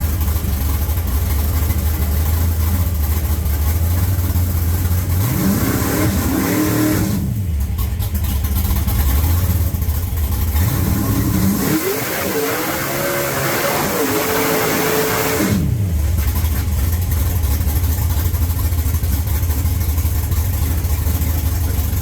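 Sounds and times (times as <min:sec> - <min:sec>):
car engine idling: 0:00.0 - 0:22.0
engine revving blip: 0:10.7 - 0:15.9.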